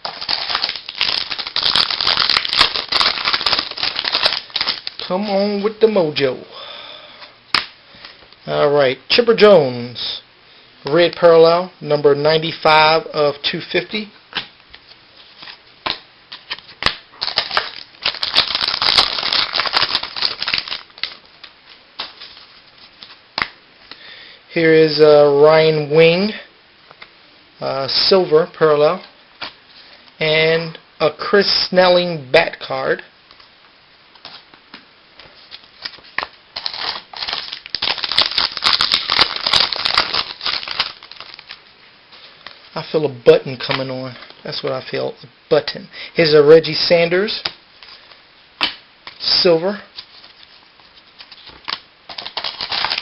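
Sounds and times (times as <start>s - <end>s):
foil wrapper crinkling: 0.0s - 5.1s, 15.2s - 23.5s, 35.3s - 42.7s, 47.3s - 53.0s
trading cards rustling: 0.0s - 5.7s, 15.2s - 23.5s, 35.2s - 42.6s, 47.8s - 53.0s.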